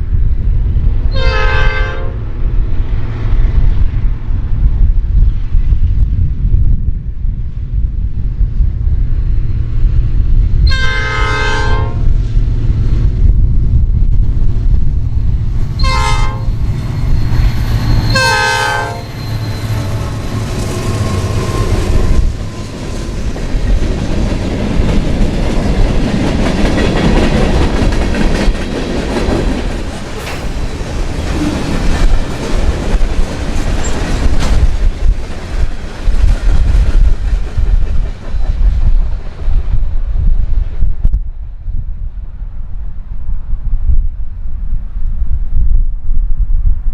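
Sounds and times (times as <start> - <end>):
locomotive air horn blasts: 1.1 - 2.2, 10.7 - 12.1, 15.8 - 16.6, 18.1 - 19.2
locomotive engine rumble: 12.1 - 39.4
train wheels clattering on rails: 16.5 - 40.0.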